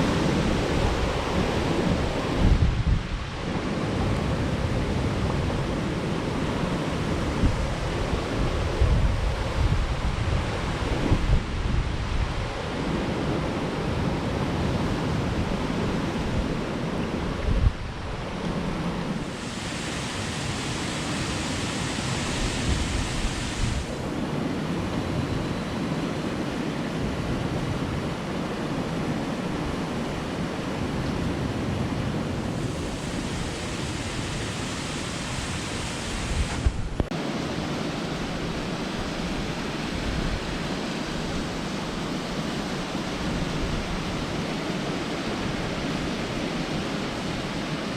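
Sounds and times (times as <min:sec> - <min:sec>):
wind rumble on microphone: 0:00.0 - 0:47.9
waterfall rushing: 0:17.8 - 0:24.3, 0:32.1 - 0:47.9.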